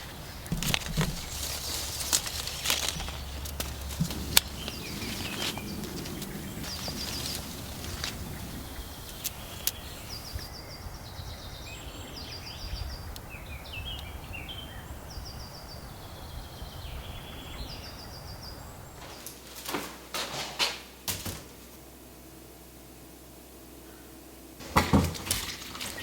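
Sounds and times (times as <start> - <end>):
songbird trilling: 0.0 - 19.0
low outdoor rumble: 0.0 - 19.2.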